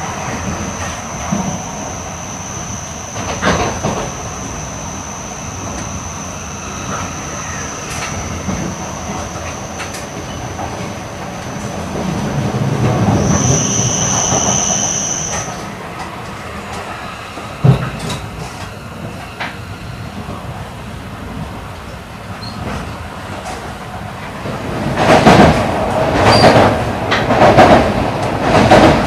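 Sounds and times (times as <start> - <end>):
train rumble: 0.0 - 29.0
high-pitched squeal from running gear: 0.1 - 11.8, 12.8 - 15.7.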